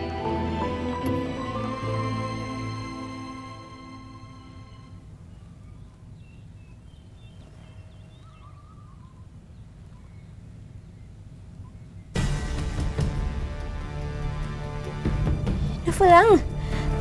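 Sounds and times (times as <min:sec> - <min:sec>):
music cue: 0:00.0 - 0:05.2
birds chirping and twittering: 0:03.8 - 0:12.4.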